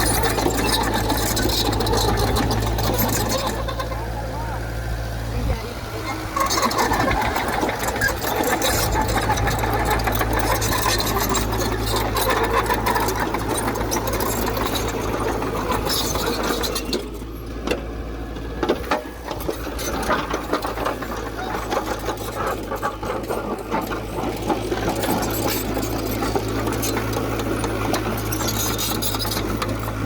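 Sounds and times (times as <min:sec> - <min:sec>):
diesel engine clattering: 0:00.0 - 0:30.0.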